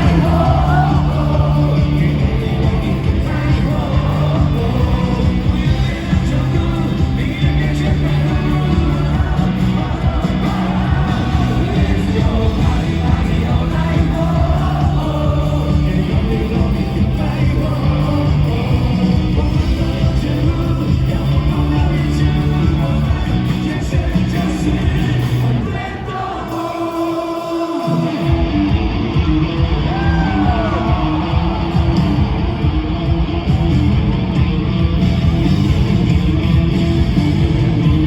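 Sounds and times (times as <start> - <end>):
lead singer singing: 0.0 - 28.6
live pop-rock band: 0.0 - 38.0.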